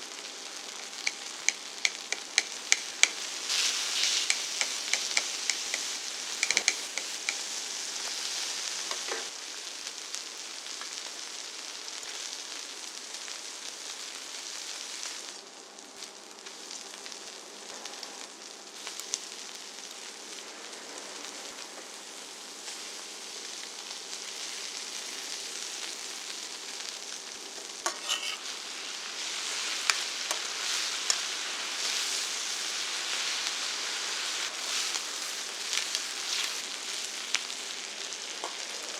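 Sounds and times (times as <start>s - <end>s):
pork belly sizzling on griddle: 0.0s - 38.9s.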